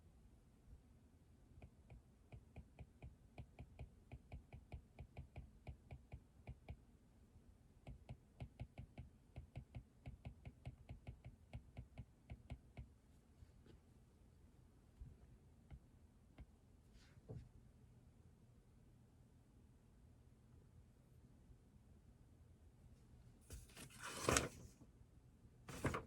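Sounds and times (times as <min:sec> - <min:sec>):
faint keyboard typing: 0:25.7 - 0:26.0.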